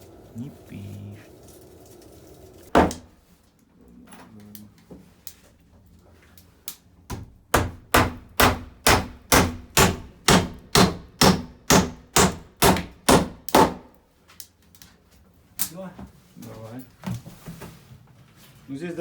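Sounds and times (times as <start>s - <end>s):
hammer striking wood: 2.7s - 3.1s, 7.1s - 13.9s.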